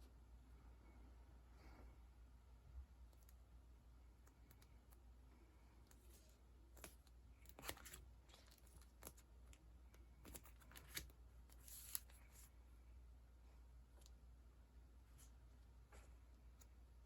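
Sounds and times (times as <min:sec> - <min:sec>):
papery rustles: 0:10.2 - 0:12.5.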